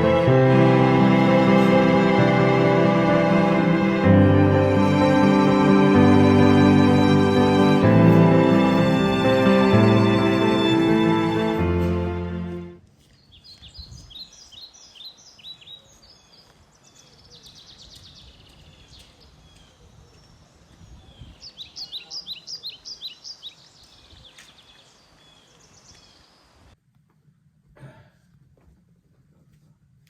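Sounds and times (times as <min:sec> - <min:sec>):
songbirds chirping: 0:13.1 - 0:26.6.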